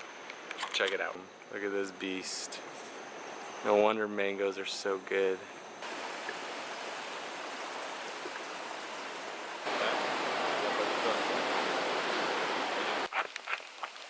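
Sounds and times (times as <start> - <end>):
water flowing: 5.8 - 14.0.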